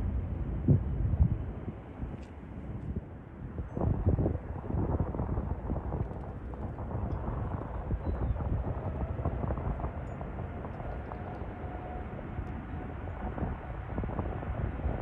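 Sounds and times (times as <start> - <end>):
distant jet engine rumble: 0.0 - 15.0
wind buffeting microphone: 0.0 - 15.0.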